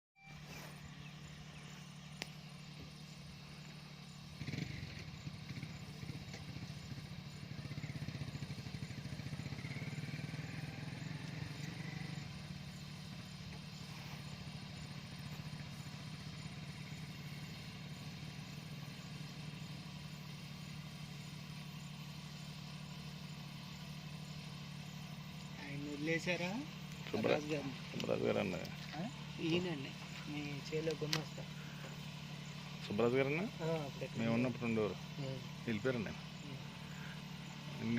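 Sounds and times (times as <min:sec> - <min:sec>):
tractor engine running: 0:00.2 - 0:37.9.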